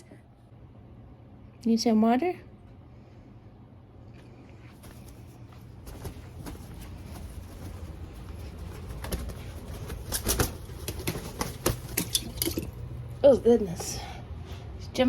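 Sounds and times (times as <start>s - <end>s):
wings flapping: 4.8s - 13.2s
water splashing: 11.9s - 12.9s.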